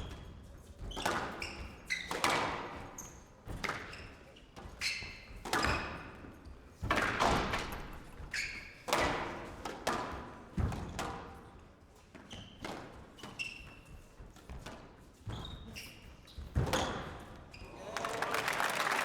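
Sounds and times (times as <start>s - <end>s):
shoes squeaking on court floor: 0.0s - 6.6s, 7.8s - 8.9s, 11.9s - 17.8s
squash ball hitting rackets and walls: 0.0s - 17.4s.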